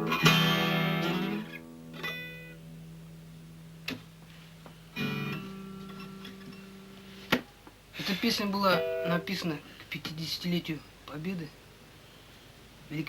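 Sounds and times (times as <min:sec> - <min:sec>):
acoustic guitar strumming: 0:00.0 - 0:04.0, 0:04.9 - 0:07.3, 0:08.4 - 0:09.6.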